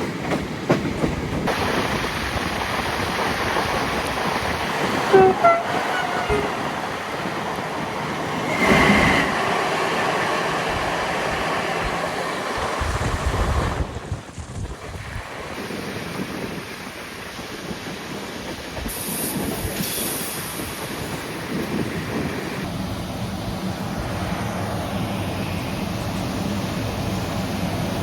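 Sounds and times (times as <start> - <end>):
train running on rails: 0.0 - 28.0
high wheel squeal: 5.1 - 6.8.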